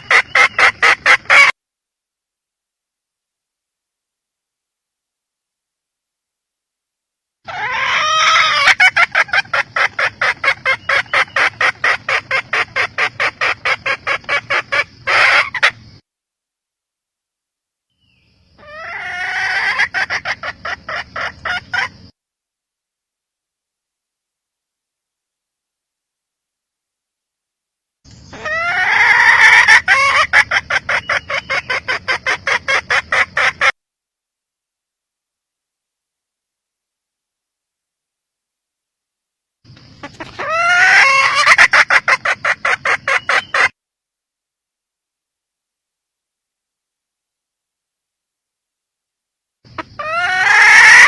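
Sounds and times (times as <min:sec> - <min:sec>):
junglefowl hen clucking: 0:00.0 - 0:01.6, 0:07.5 - 0:16.0, 0:18.6 - 0:22.1, 0:28.2 - 0:33.8, 0:39.7 - 0:43.8, 0:49.7 - 0:51.0.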